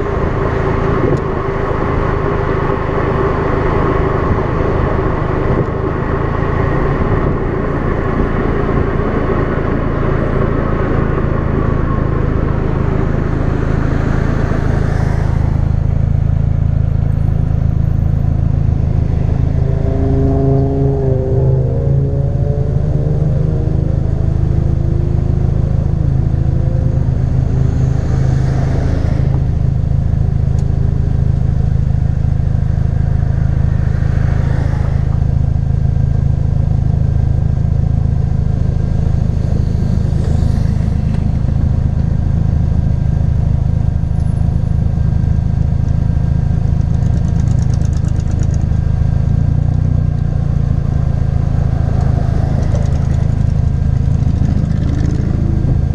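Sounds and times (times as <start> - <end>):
car engine droning: 0.0 - 55.9.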